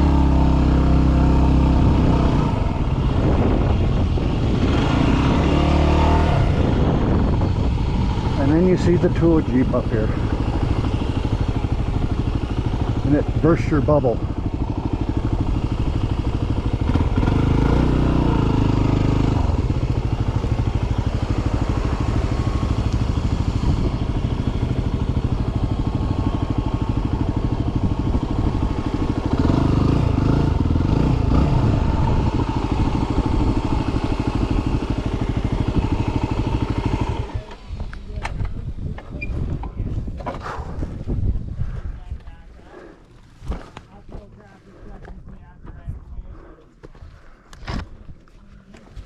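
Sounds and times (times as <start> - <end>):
motorcycle engine revving: 0.0 - 41.4.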